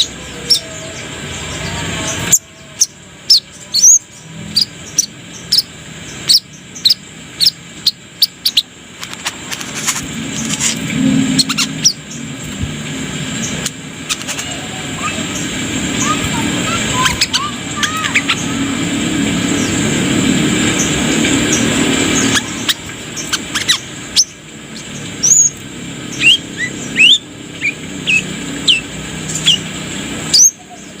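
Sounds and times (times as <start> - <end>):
low background rumble: 0.0 - 31.0
bird chirping sharply: 13.4 - 19.8, 20.7 - 29.7.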